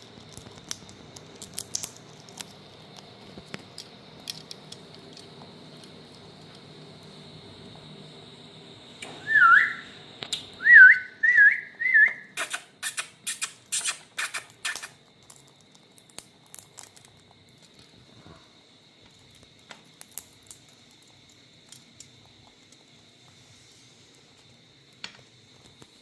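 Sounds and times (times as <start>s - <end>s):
parakeet whistling: 9.0s - 10.0s, 10.6s - 14.9s
parakeet screeching: 9.2s - 9.9s, 10.7s - 14.9s
faint beak clicks: 12.4s - 14.9s.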